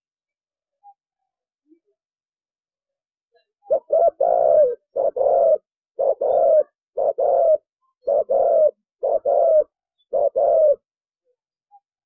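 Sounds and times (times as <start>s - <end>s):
dove cooing: 3.7s - 10.9s.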